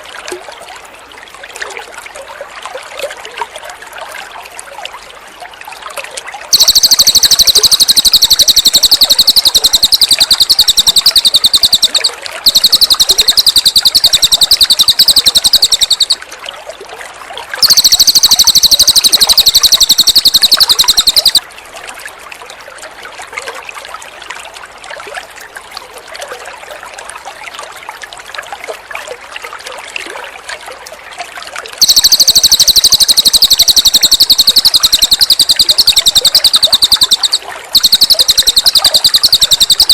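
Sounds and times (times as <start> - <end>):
water trickling softly: 0.0 - 39.9
bird singing high-pitched trills: 6.5 - 16.2, 17.6 - 21.4, 31.8 - 39.9.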